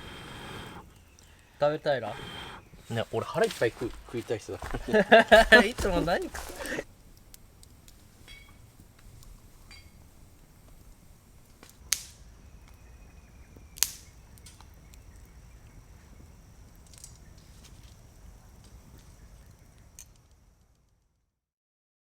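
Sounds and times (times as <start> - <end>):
sharp cracks: 11.5 - 12.2, 13.8 - 14.7.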